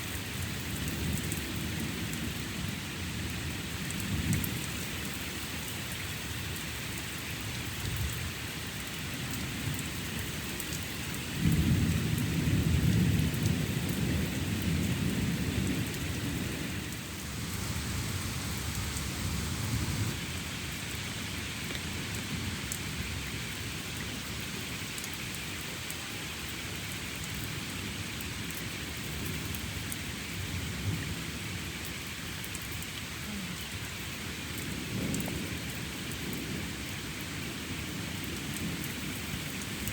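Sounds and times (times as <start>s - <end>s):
steady rain: 0.0s - 39.9s
thunder rumble: 11.5s - 20.4s.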